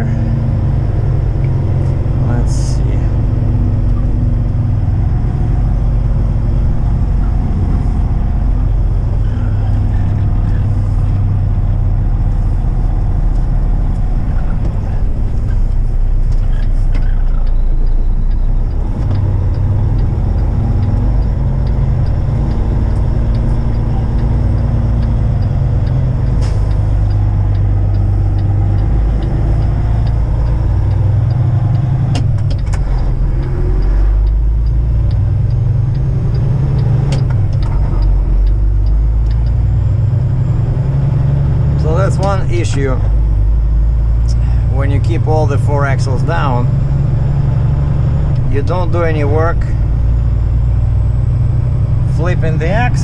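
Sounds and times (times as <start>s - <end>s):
truck diesel engine droning: 0.0s - 53.0s.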